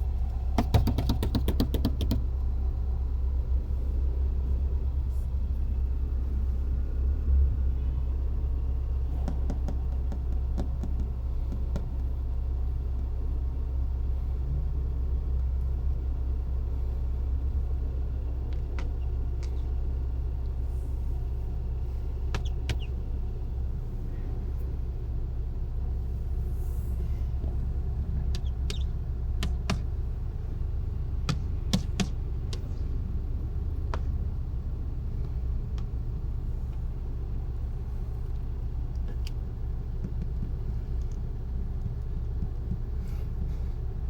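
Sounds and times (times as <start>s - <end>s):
car engine idling: 0.0s - 44.0s
sharp light taps: 28.3s - 29.9s.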